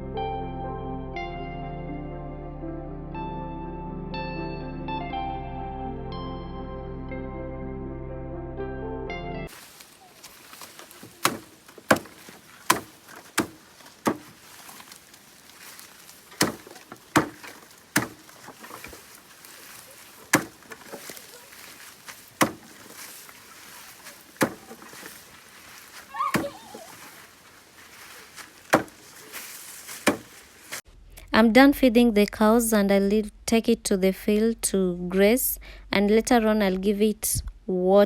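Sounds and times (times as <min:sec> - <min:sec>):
blade chopping grass stalks: 0:09.5 - 0:30.8.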